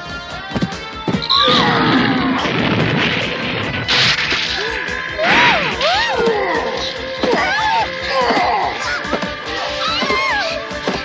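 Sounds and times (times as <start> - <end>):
lively background music: 0.0 - 11.0
cartoon crash and whack effects: 1.4 - 6.1.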